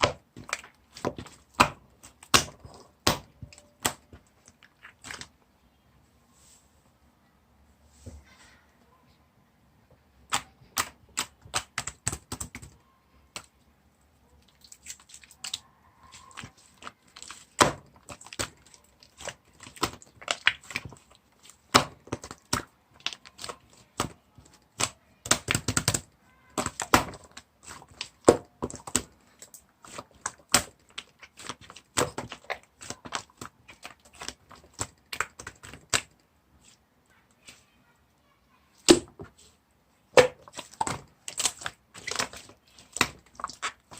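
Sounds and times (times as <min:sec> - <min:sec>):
slime squishing and popping: 0:00.0 - 0:05.3, 0:10.3 - 0:13.6, 0:14.4 - 0:36.8, 0:40.1 - 0:43.9.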